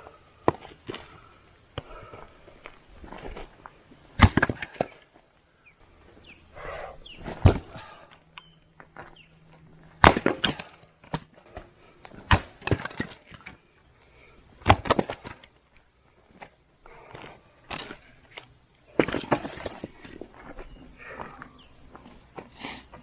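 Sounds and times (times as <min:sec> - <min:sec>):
axe striking wood: 0:04.2 - 0:04.9, 0:07.4 - 0:07.8, 0:10.0 - 0:11.2, 0:12.3 - 0:13.2, 0:14.6 - 0:15.4
wood cracking and splitting: 0:04.2 - 0:05.2, 0:10.0 - 0:13.6, 0:14.6 - 0:20.6.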